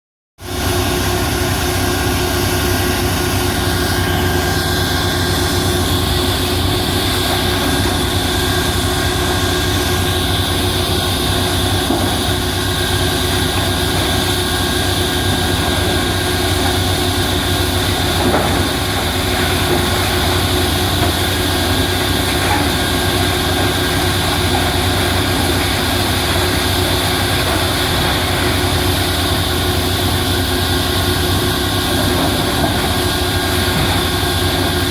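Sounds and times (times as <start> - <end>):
heavy machinery engine running: 0.4 - 34.9.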